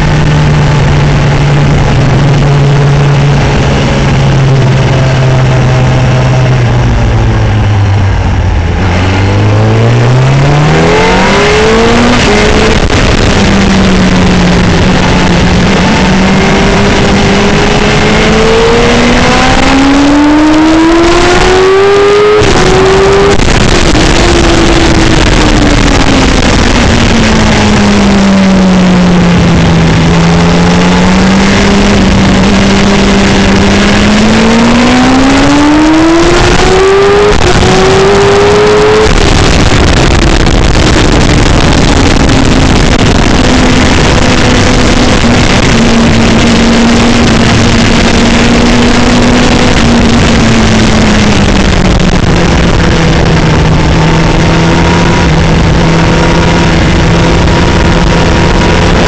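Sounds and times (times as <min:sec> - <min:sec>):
racing motorcycle engine revving: 0:00.0 - 0:59.0
wind noise on microphone: 0:00.0 - 0:59.0.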